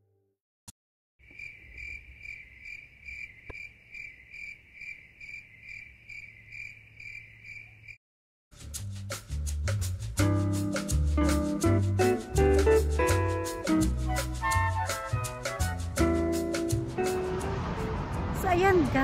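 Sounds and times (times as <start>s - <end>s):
crickets chirping: 1.2s - 8.0s.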